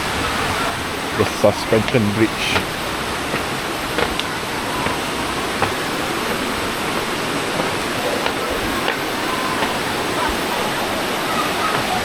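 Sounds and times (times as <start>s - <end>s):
river rushing over cascades: 0.0s - 12.0s
faint knocks: 1.2s - 10.4s.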